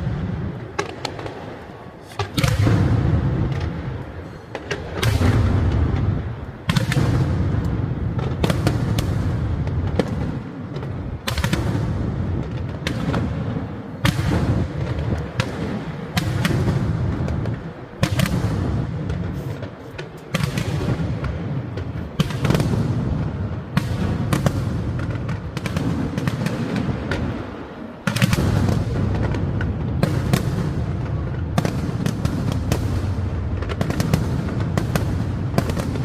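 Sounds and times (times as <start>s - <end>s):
fireworks cracks and bangs: 0.0s - 36.0s.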